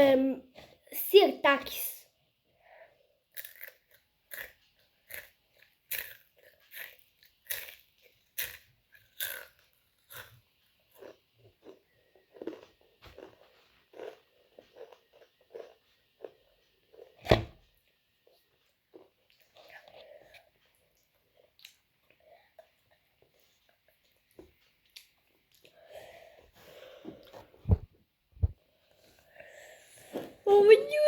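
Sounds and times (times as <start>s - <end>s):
person crunching chips: 3.4s - 10.4s, 11.0s - 15.8s.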